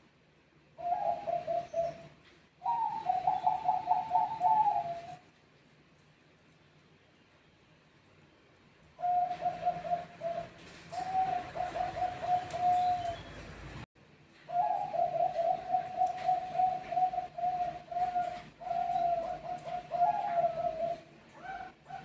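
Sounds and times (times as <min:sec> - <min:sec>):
dove cooing: 0:00.8 - 0:05.3, 0:09.0 - 0:13.6, 0:14.5 - 0:22.0.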